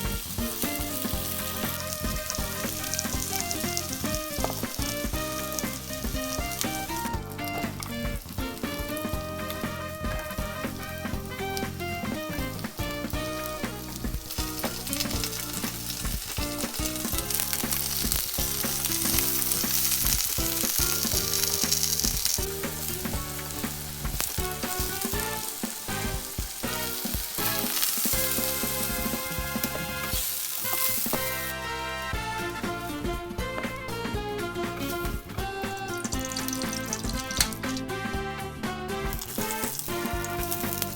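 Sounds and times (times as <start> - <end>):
vegetables sizzling in oil: 0.0 - 38.0, 39.0 - 40.9
music playing: 0.0 - 40.9.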